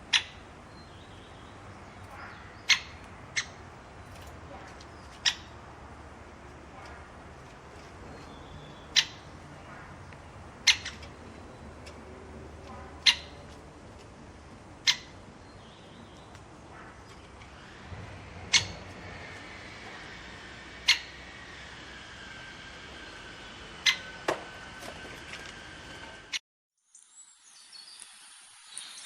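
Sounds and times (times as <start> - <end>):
bird sharp calls: 0.0 - 13.6, 14.8 - 21.8, 22.8 - 24.6.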